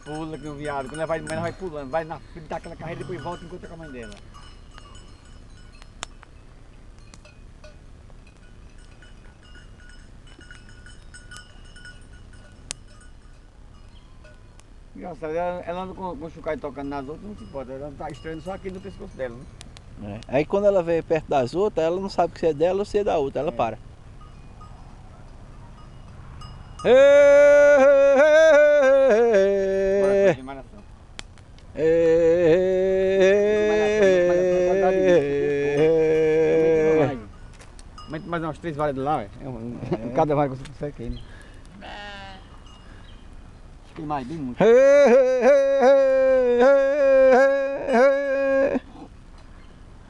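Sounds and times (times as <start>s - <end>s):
sheep bells clinking: 0.0s - 31.1s, 33.2s - 41.6s, 42.3s - 44.6s
person singing: 26.8s - 30.4s, 31.8s - 37.3s, 44.6s - 48.8s.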